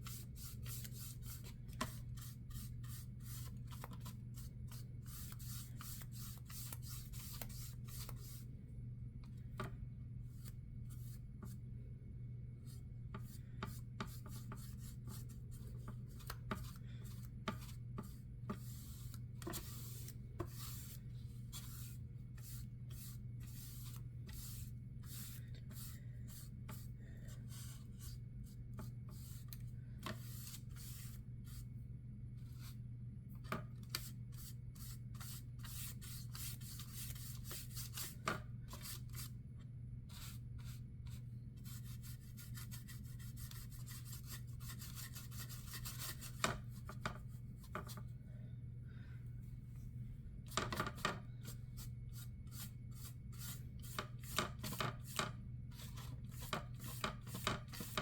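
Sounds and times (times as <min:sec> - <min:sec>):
steady low hum: 0:00.0 - 0:57.8.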